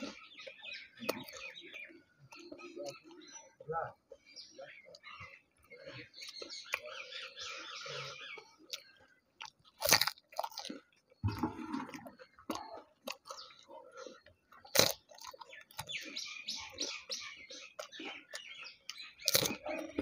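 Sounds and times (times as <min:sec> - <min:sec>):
person crunching crisp shells: 0:08.7 - 0:11.1, 0:14.5 - 0:16.2, 0:17.7 - 0:20.0.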